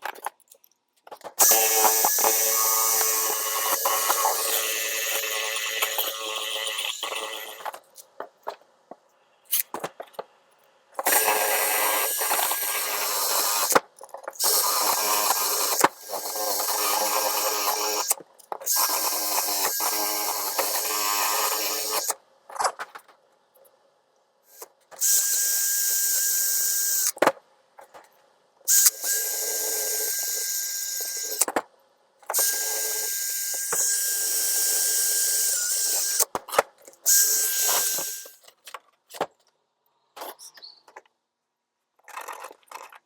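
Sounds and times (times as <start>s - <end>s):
small power tool running: 1.4s - 7.7s, 11.0s - 13.8s, 14.4s - 22.2s, 25.0s - 27.2s, 28.7s - 31.5s, 32.3s - 36.3s, 37.1s - 38.4s.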